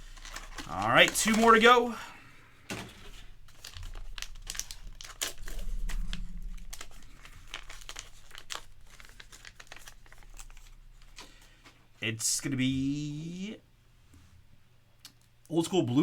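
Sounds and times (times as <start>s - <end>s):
plastic packaging tearing and crinkling: 0.0s - 2.0s, 2.7s - 11.3s.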